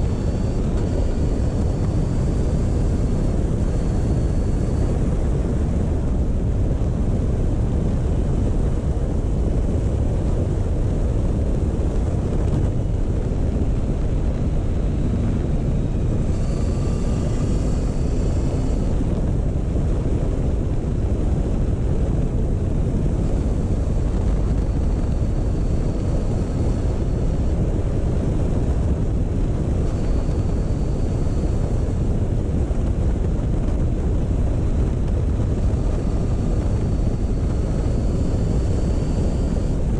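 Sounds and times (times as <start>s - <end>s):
wind rushing over microphone: 0.0s - 39.9s
motorcycle engine running: 13.0s - 20.9s.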